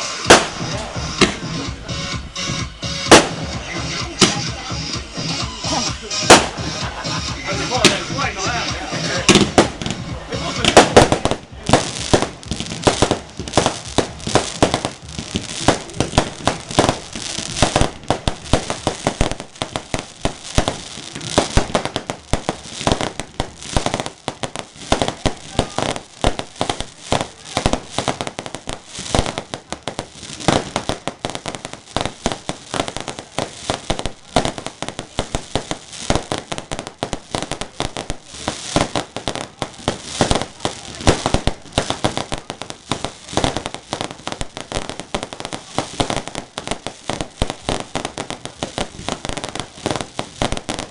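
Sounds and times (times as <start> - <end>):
fireworks bangs: 0.0 - 50.9
fireworks cracking and popping: 0.0 - 50.9.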